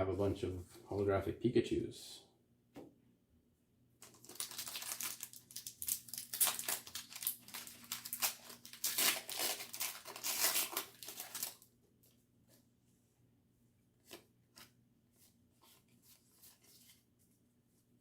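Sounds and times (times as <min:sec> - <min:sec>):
foil wrapper crinkling and tearing: 0:04.0 - 0:11.7.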